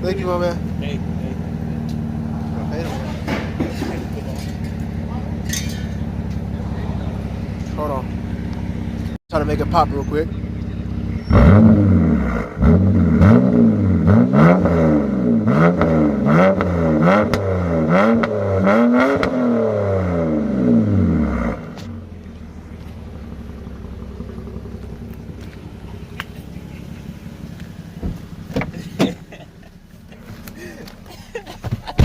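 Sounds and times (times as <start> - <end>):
car engine revving and idling: 0.0 - 32.0.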